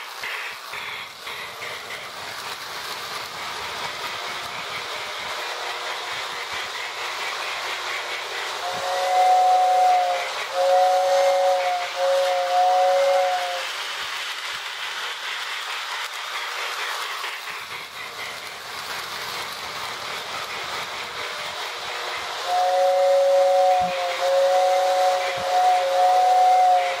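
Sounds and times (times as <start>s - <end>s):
toy steam train chuffing hiss: 0.0s - 27.0s
two-tone train whistle: 8.6s - 13.8s, 22.4s - 27.0s.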